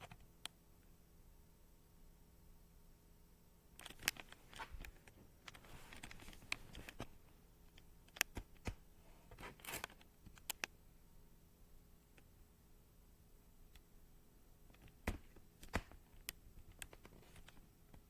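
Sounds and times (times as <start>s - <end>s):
rustling: 3.8s - 7.3s.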